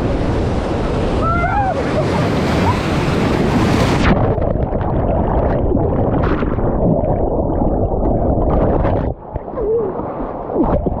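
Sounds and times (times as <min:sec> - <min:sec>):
whitewater rapids rushing: 0:00.0 - 0:04.1
muffled underwater gurgling: 0:01.5 - 0:11.0.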